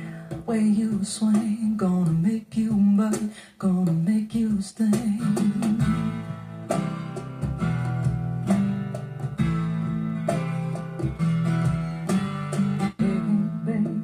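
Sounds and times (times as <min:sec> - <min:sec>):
song with strummed guitar: 0:00.0 - 0:14.0.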